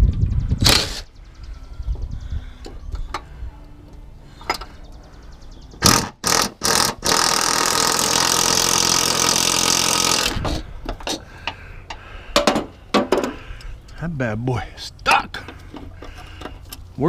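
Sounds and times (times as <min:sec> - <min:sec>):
impact wrench bursts: 0:05.8 - 0:10.6.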